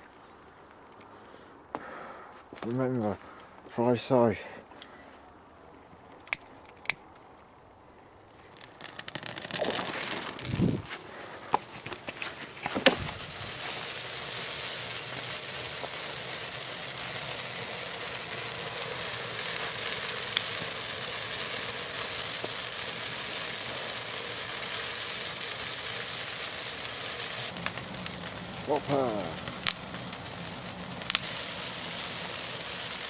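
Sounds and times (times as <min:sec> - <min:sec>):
firework crack: 0:08.2 - 0:33.0
firework hissing sparks: 0:08.4 - 0:33.0.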